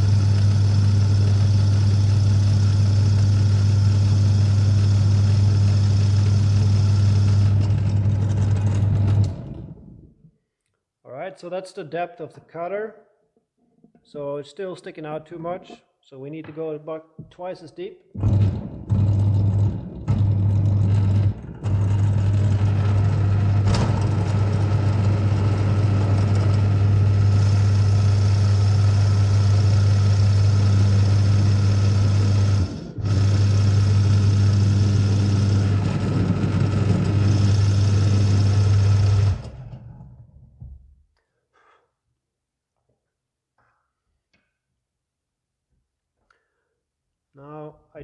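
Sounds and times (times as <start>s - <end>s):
drill press motor whirring: 0.0s - 10.1s, 18.2s - 40.1s.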